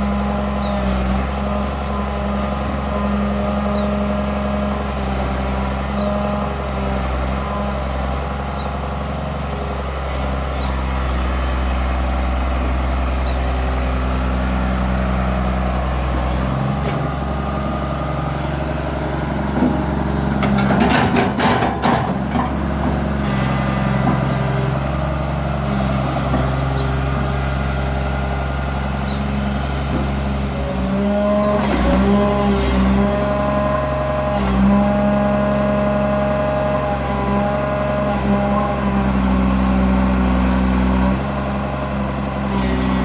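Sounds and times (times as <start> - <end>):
excavator diesel engine: 0.0 - 43.0
machinery clatter: 19.5 - 24.8.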